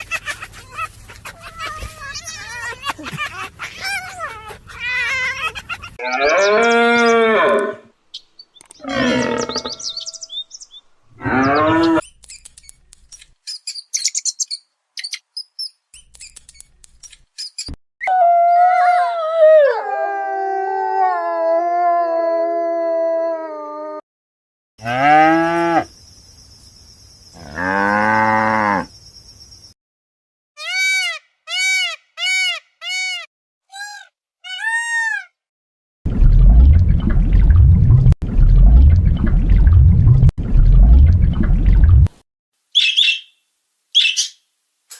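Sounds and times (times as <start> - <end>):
animal calls: 0.0 - 7.9, 8.8 - 10.3, 11.2 - 12.0
cow mooing: 6.0 - 7.9, 8.8 - 9.9, 11.2 - 12.0, 24.8 - 25.9, 27.4 - 28.9.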